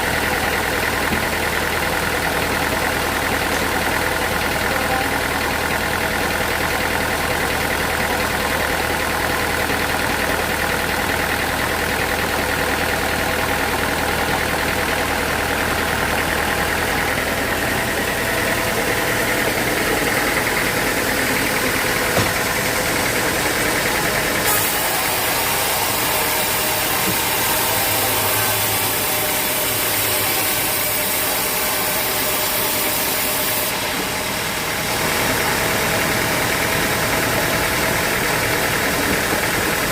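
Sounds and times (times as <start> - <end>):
sawmill machinery running: 0.0 - 39.9
knock: 22.2 - 22.4.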